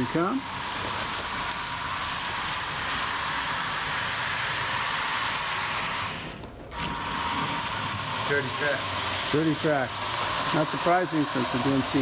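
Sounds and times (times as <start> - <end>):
model train wheels on rails: 0.0 - 12.0.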